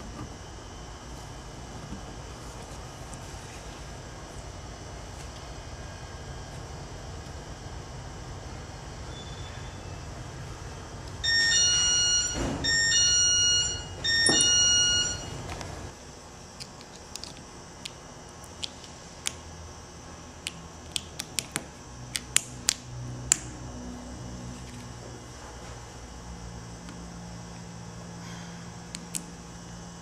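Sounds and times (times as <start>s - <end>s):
electronic beeps: 11.2s - 15.4s.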